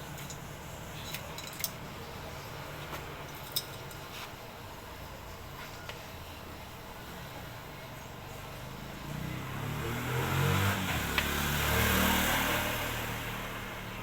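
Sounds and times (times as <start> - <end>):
vehicle engine rising in pitch: 9.1 - 14.0.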